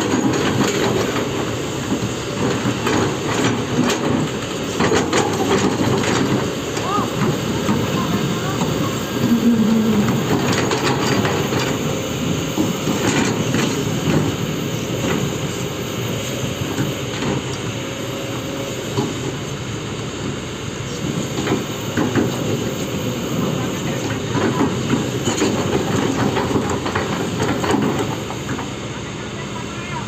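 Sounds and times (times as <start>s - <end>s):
steel tracks squealing: 0.0s - 19.2s
excavator engine running: 0.0s - 30.0s.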